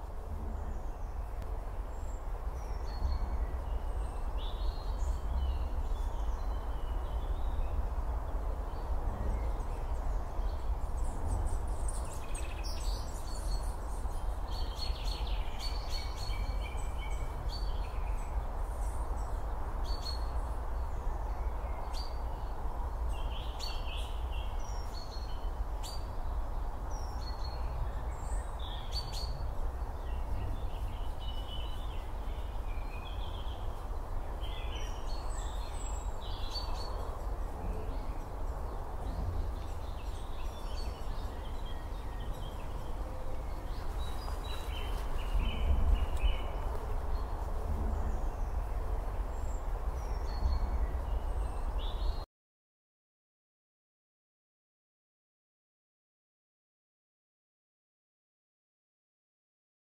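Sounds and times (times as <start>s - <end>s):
low rumble and hiss: 0.0s - 51.7s
birds calling and chirping: 23.1s - 52.2s.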